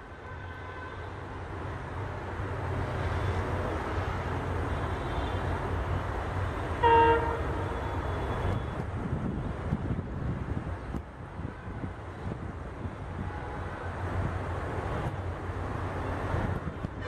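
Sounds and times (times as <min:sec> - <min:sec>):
diesel locomotive rumbling: 0:01.2 - 0:17.0
train horn toot: 0:06.8 - 0:08.8.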